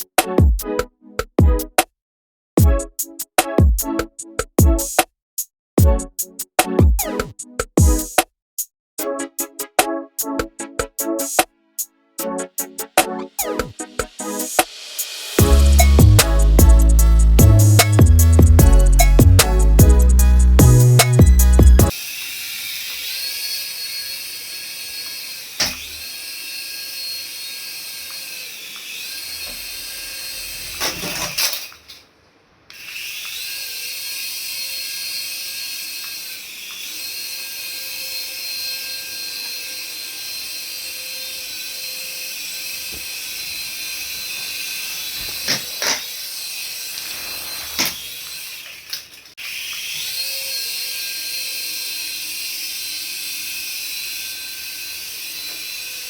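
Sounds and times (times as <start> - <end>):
toy electric motor whining: 13.4 - 31.7, 32.7 - 56.0.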